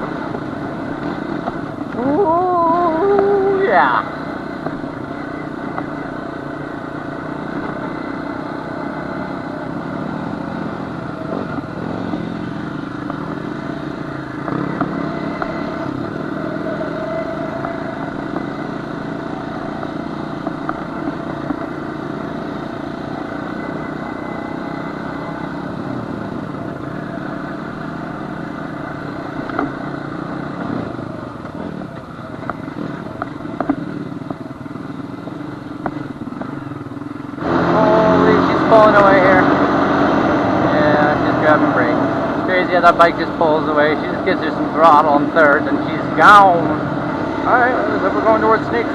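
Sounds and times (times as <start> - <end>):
knocks and clatter over bumps: 0.0 - 2.1, 11.3 - 16.5, 17.4 - 22.8, 27.5 - 37.6
quad engine running: 0.0 - 48.9.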